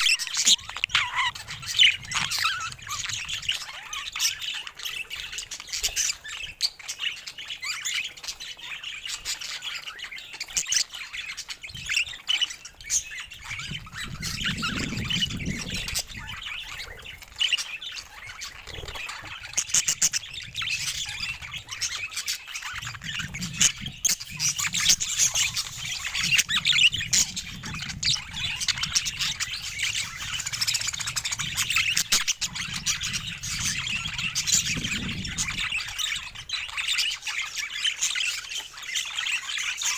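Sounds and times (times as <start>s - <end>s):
budgies chattering: 0.0s - 39.9s.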